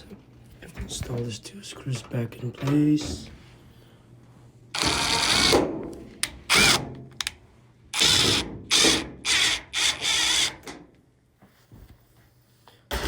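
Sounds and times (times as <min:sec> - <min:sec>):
cordless drill driving screws: 0:04.8 - 0:05.6, 0:06.5 - 0:07.3, 0:08.0 - 0:10.7.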